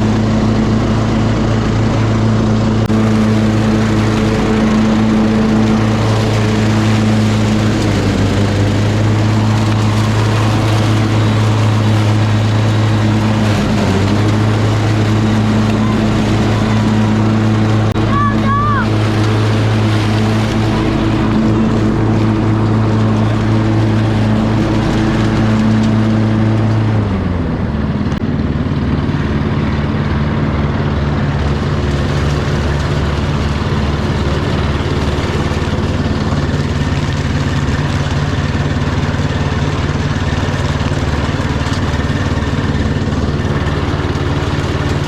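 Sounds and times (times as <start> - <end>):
lawn mower engine running: 0.0 - 45.0.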